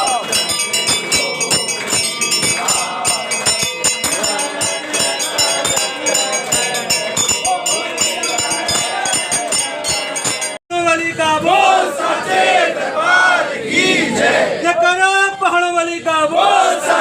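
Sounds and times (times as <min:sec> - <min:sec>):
metallic percussion clanging: 0:00.0 - 0:10.6
temple bells ringing rapidly: 0:00.0 - 0:10.6
voices singing together: 0:00.0 - 0:10.6, 0:11.3 - 0:14.7, 0:16.3 - 0:17.0.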